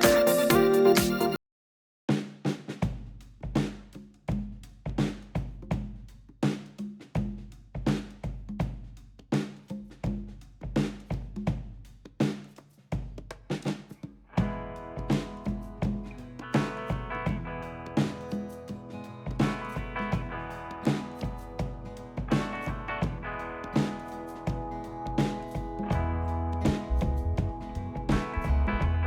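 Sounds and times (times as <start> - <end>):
drum kit beat: 0.0 - 1.4, 2.1 - 29.0
pitched instruments: 0.0 - 1.4.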